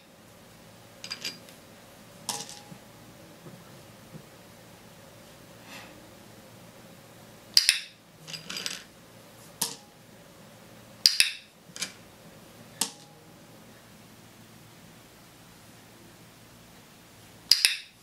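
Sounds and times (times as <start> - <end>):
toy animals clattering on tabletop: 1.0 - 1.5, 2.3 - 2.8, 7.6 - 8.9
training clicker clicks: 7.6 - 7.9, 17.5 - 17.9.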